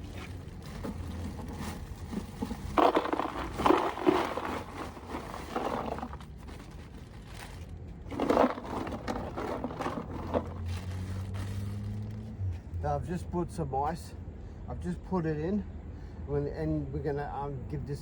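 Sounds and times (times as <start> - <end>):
ice crunching and scraping: 0.0 - 12.2.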